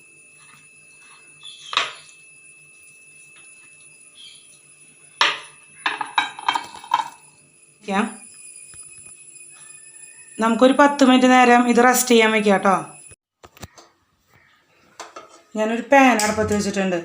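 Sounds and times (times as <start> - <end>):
clinks against a mixing bowl: 5.2 - 7.2.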